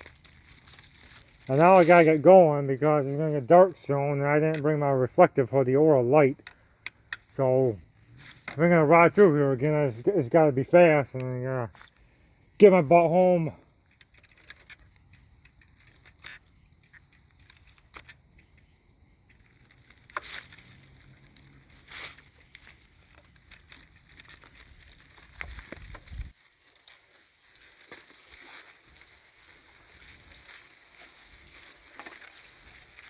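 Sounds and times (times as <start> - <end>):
bicycle rattling and crunching: 0.0 - 33.0
wind rumble on microphone: 24.8 - 26.4.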